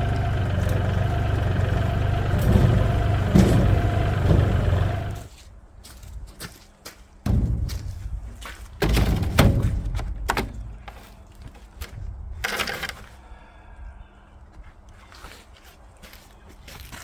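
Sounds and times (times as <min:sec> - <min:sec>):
heavy thuds and knocks: 0:00.0 - 0:05.3, 0:07.2 - 0:11.0.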